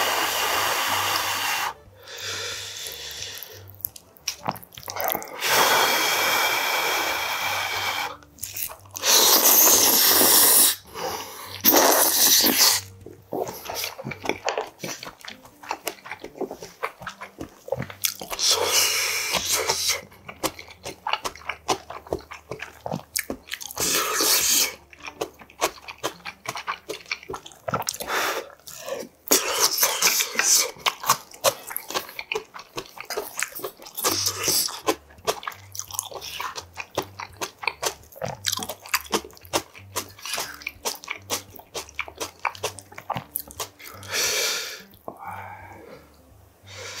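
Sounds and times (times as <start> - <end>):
close-miked chewing: 1.0 - 5.6, 6.6 - 47.0
wet mouth clicks: 11.5 - 44.1.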